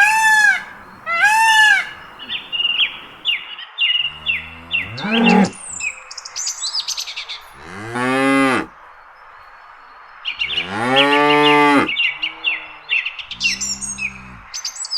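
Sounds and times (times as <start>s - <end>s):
cow mooing: 0.0s - 3.3s, 4.1s - 5.8s, 7.5s - 8.7s, 10.5s - 14.6s
small birds chirping: 0.0s - 14.9s.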